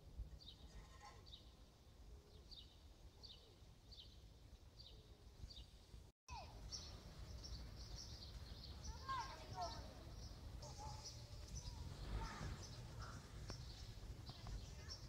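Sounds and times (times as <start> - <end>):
several birds chirping: 6.5 - 15.0
bird chirping: 6.6 - 15.0.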